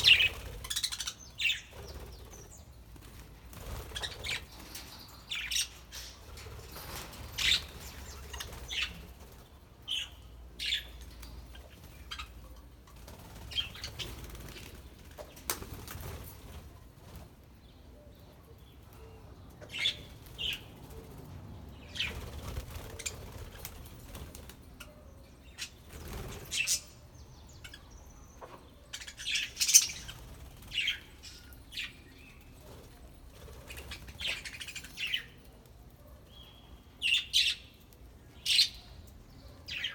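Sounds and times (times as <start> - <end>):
wings flapping: 1.7 - 5.0, 13.0 - 17.2.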